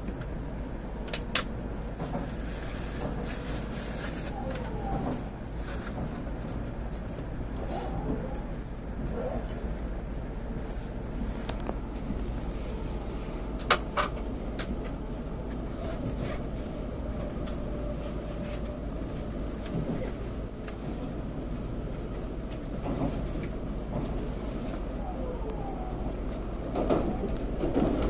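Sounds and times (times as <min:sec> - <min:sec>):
train cabin rumble and hum: 0:00.0 - 0:28.0.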